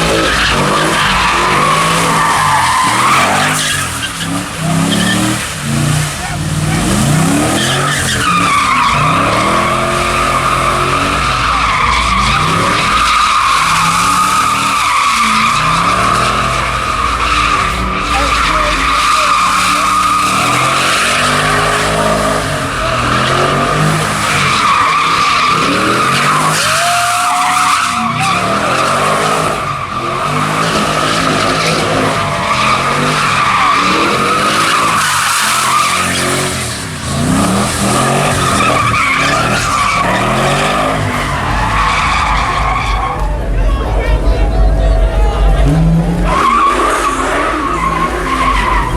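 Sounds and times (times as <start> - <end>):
car engine revving: 0.0 - 48.9
tyres squealing: 0.0 - 48.9.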